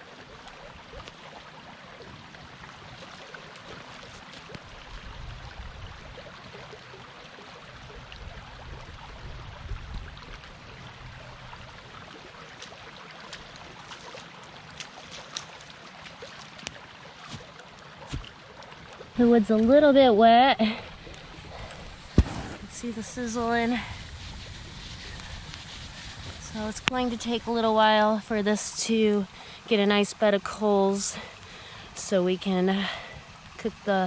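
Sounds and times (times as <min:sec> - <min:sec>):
creek water rushing: 0:00.0 - 0:34.0
campfire crackling: 0:20.6 - 0:28.1.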